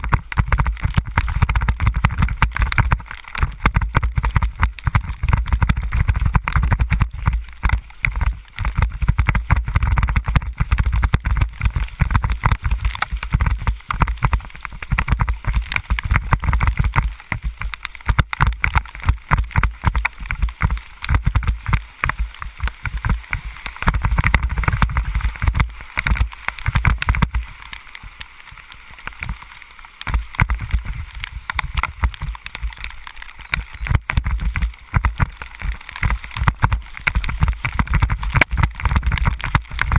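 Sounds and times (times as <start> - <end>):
rain crackling and splashing: 0.0 - 39.9
wind buffeting microphone: 19.1 - 27.6.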